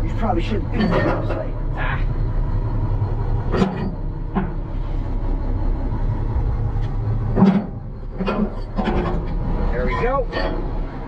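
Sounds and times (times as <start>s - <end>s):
truck diesel engine idling: 0.0s - 11.0s
metallic knocks: 7.3s - 9.4s.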